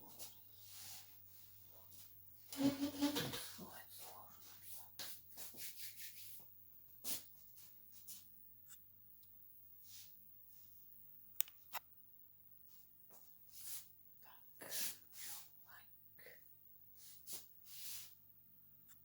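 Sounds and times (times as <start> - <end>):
brush strokes scratching: 0.2 - 8.8, 13.5 - 13.9, 17.0 - 18.2.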